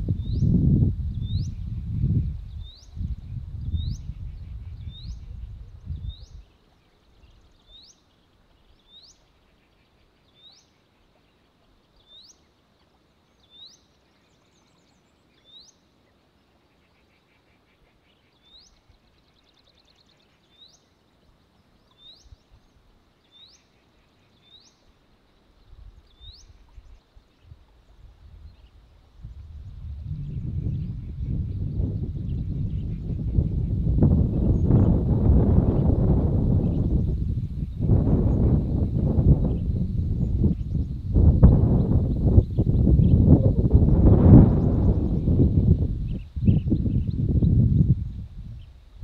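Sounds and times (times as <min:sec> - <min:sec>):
outdoor background noise: 0:00.0 - 0:49.0
low rumble: 0:29.3 - 0:48.4.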